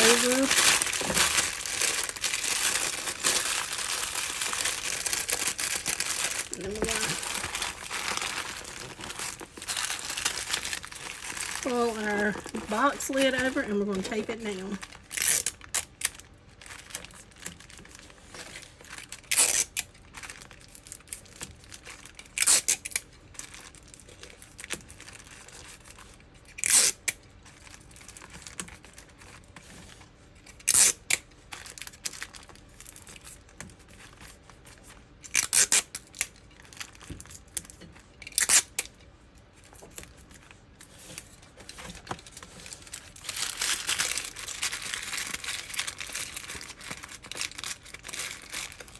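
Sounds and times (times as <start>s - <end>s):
paper and cardboard rustling: 0.0s - 15.7s, 39.6s - 48.9s
tape ripping off a roll: 15.1s - 16.1s, 19.0s - 19.9s, 22.2s - 23.0s, 26.5s - 27.2s, 30.6s - 31.2s, 35.2s - 36.3s, 38.3s - 38.9s.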